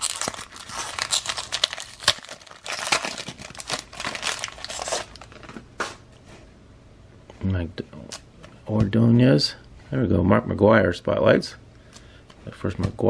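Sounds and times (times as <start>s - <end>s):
card pack wrapper crinkling: 0.0s - 5.6s.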